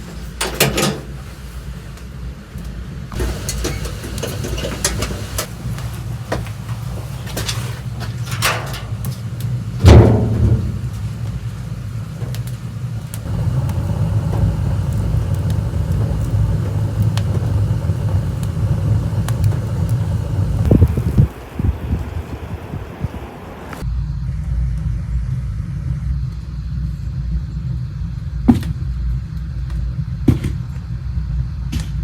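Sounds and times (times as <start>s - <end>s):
low rumbling noise: 0.7s - 32.0s
loud thump: 9.8s - 10.9s.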